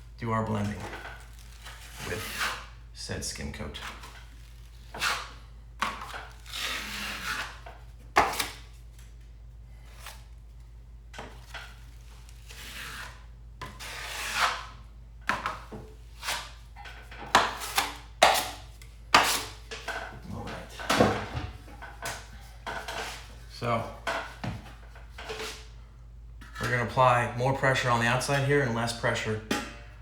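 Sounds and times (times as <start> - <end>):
drywall knife scraping compound: 0.6 - 2.8, 3.8 - 8.7, 11.4 - 20.6, 22.0 - 25.8, 26.4 - 27.0.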